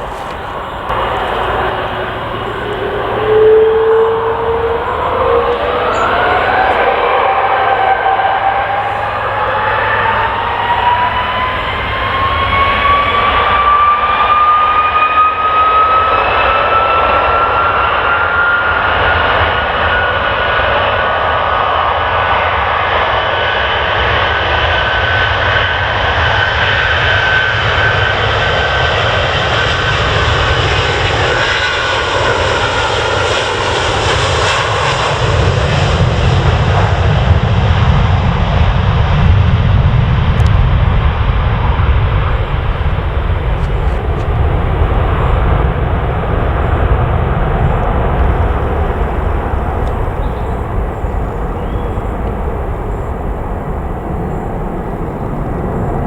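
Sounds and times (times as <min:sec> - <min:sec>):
deep rumble: 0:00.0 - 0:14.4, 0:34.8 - 0:56.0
jet engines whining: 0:00.0 - 0:56.0.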